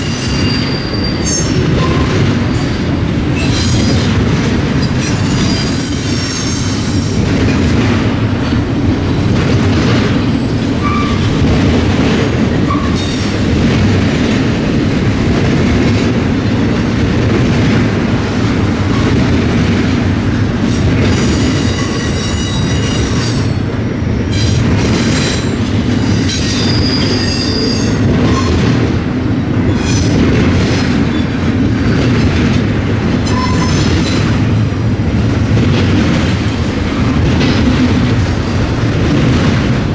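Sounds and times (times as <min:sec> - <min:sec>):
train wheels squealing: 0:00.0 - 0:02.8, 0:03.4 - 0:04.2, 0:05.0 - 0:07.6, 0:10.8 - 0:11.4, 0:12.7 - 0:13.6, 0:20.7 - 0:28.7, 0:32.8 - 0:34.5
freight train rumbling past: 0:00.0 - 0:39.9.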